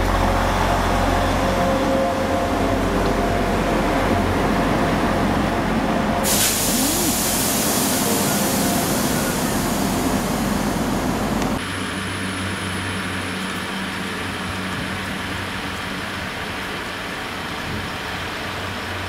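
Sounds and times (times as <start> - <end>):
train engine hum: 0.0 - 19.0
loud hiss: 6.2 - 11.1.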